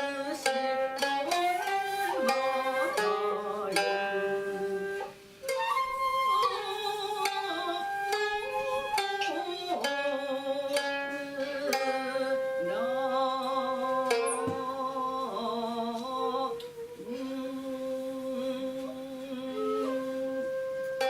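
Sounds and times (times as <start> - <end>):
plucked koto notes: 0.0 - 15.2
bamboo flute held tones: 1.2 - 10.4, 16.3 - 18.1, 19.3 - 21.0.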